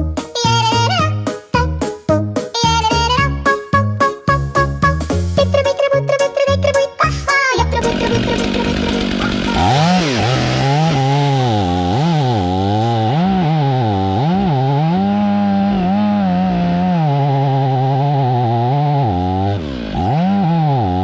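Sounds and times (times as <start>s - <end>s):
chainsaw engine revving: 7.8s - 21.0s.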